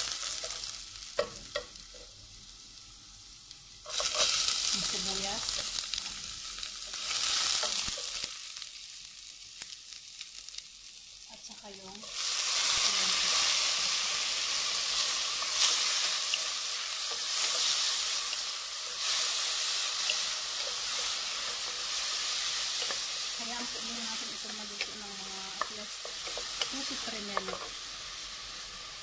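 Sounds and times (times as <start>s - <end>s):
garlic and onion sizzling in oil: 0.0s - 29.0s
wooden spoon stirring pot: 16.3s - 27.8s.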